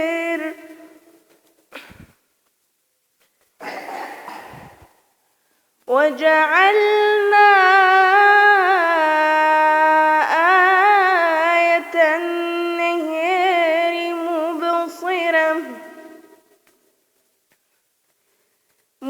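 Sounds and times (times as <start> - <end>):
woman chanting melodically: 0.0 - 1.1, 5.9 - 16.4.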